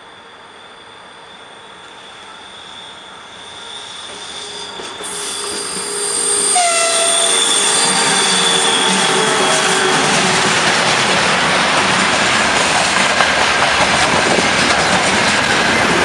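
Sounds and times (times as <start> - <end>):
freight train passing: 0.0 - 16.0
high wheel squeal: 0.1 - 11.4
train horn blast: 3.0 - 10.8.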